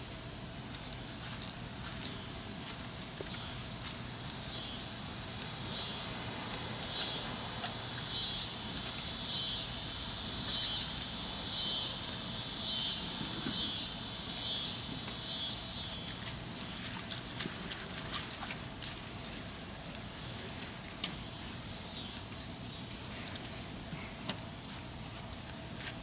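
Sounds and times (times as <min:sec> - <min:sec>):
insects buzzing: 0:00.1 - 0:26.0.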